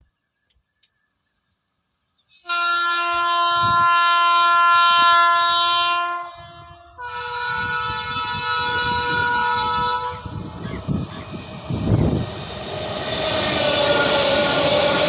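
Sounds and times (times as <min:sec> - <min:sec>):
locomotive horn blasts: 0:02.4 - 0:10.4
train rumbling: 0:06.3 - 0:15.0.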